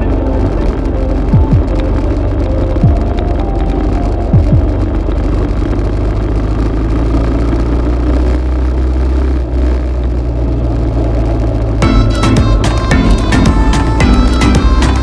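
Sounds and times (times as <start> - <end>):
dirt bike engine running: 0.0 - 3.6.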